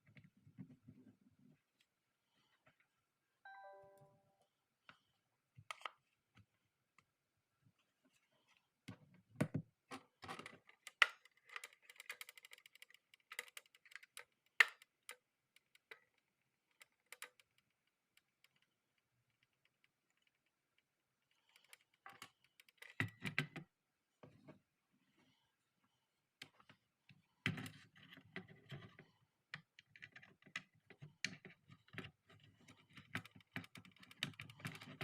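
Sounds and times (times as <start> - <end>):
plastic clicking and rattling: 9.9 - 20.8, 29.6 - 35.0.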